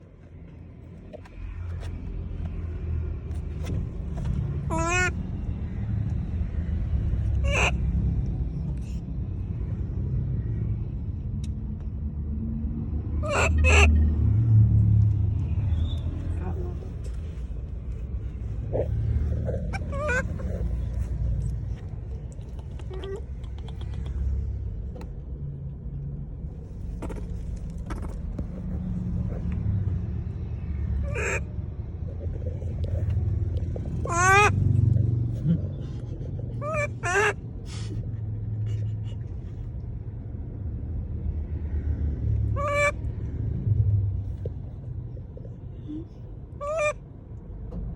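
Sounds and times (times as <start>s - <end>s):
low rumble: 0.0s - 46.6s
monkey calling: 4.7s - 5.2s, 7.4s - 7.8s, 13.2s - 14.0s, 18.7s - 20.9s, 22.6s - 24.2s, 31.0s - 31.5s, 33.8s - 34.7s, 36.6s - 37.9s, 42.6s - 43.0s, 46.6s - 47.0s
faint clicks: 21.4s - 25.2s.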